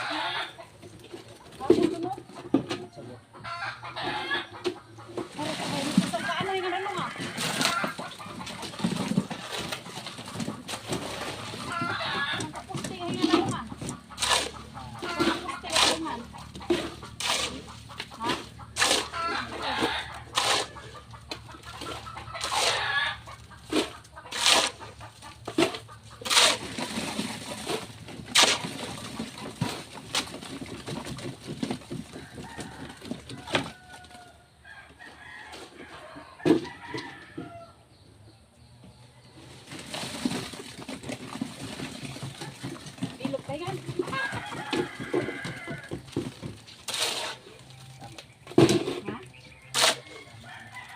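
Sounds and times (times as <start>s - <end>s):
chickens clucking: 0.0s - 50.9s
rooster crowing: 49.9s - 50.9s.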